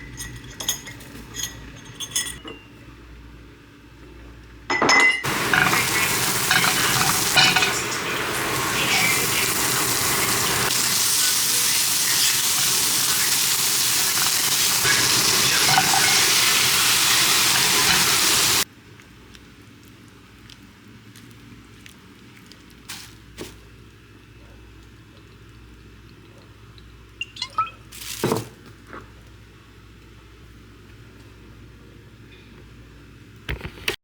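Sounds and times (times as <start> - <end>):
food sizzling in a frying pan: 5.2 - 18.7.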